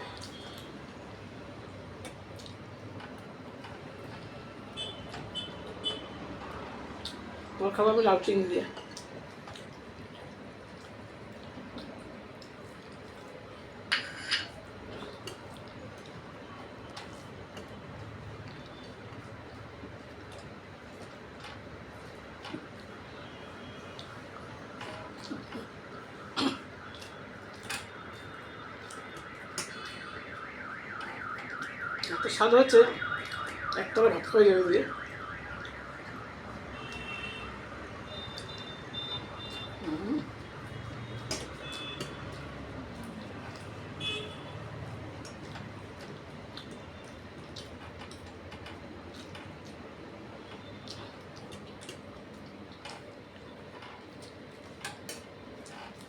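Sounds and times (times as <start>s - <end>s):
chewing and mouth noises: 0.0s - 7.6s, 8.6s - 34.2s, 35.5s - 56.0s
low steady background hum: 0.0s - 56.0s
mouth smacks while chewing: 2.0s - 3.3s, 45.1s - 56.0s.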